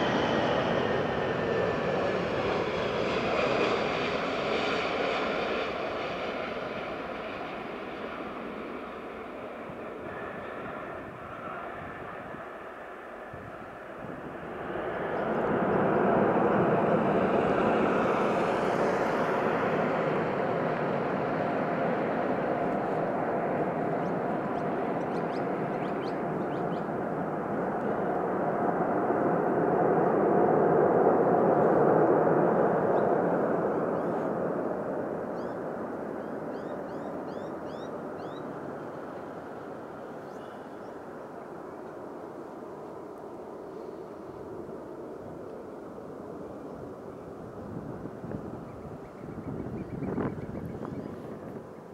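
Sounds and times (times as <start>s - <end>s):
jet airliner passing: 0.0s - 51.9s
high bird chirps: 36.5s - 38.4s.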